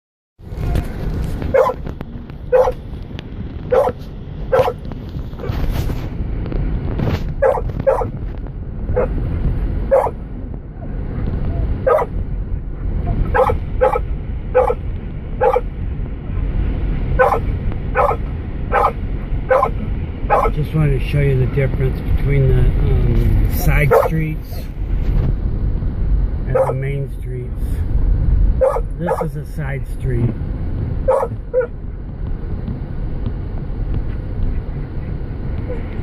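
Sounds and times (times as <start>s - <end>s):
vehicle driving rumble: 0.4s - 36.0s
dog barking: 1.5s - 1.8s, 2.5s - 2.8s, 3.7s - 4.8s, 7.4s - 8.1s, 9.9s - 10.2s, 11.8s - 12.2s, 13.2s - 14.8s, 15.4s - 15.7s, 17.2s - 20.6s, 23.9s - 24.2s, 26.5s - 26.8s, 28.6s - 29.3s, 31.1s - 31.7s.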